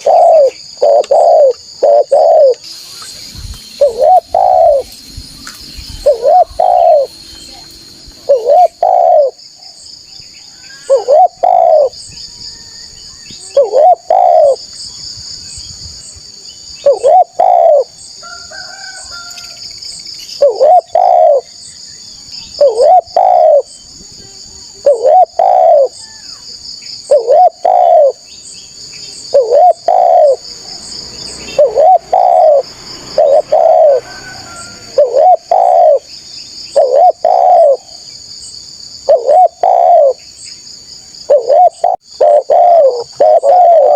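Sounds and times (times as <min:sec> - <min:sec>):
dove cooing: 0:00.0 - 0:02.6, 0:03.8 - 0:04.9, 0:05.9 - 0:07.1, 0:08.2 - 0:09.4, 0:10.7 - 0:12.0, 0:13.4 - 0:14.6, 0:16.8 - 0:18.0, 0:20.4 - 0:21.6, 0:22.6 - 0:23.7, 0:24.8 - 0:26.2, 0:27.0 - 0:28.3, 0:29.3 - 0:30.8, 0:31.5 - 0:36.1, 0:36.7 - 0:38.0, 0:39.0 - 0:40.2, 0:41.2 - 0:43.9.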